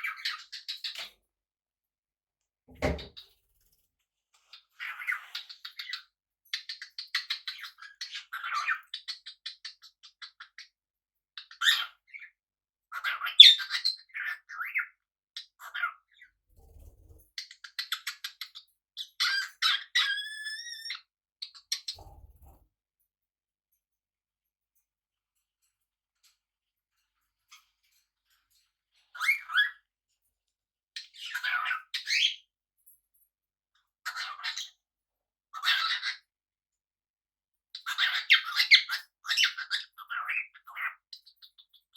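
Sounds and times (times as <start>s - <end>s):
parrot chirping and squawking: 4.8s - 6.0s, 6.6s - 10.5s, 12.9s - 14.8s, 17.4s - 22.5s, 29.2s - 29.8s, 31.0s - 32.4s, 34.1s - 34.7s, 35.6s - 36.2s, 37.8s - 41.7s
parrots chattering: 31.1s - 32.4s, 34.1s - 34.7s, 35.6s - 36.2s, 37.8s - 41.0s
parrot squawking: 35.6s - 36.2s.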